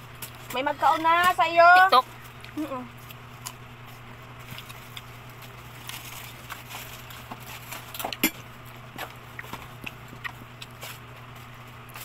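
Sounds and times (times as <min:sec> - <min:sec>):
steady low hum: 0:00.0 - 0:12.0
person chewing with mouth clicks: 0:09.0 - 0:11.1.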